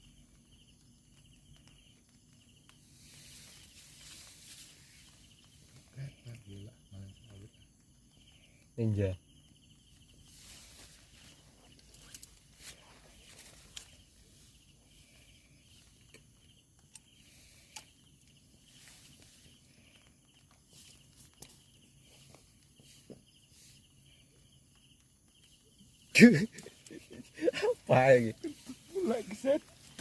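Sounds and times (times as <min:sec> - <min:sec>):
faint insect chirring: 0:00.0 - 0:30.0
soft clicks and rustles: 0:09.9 - 0:26.0.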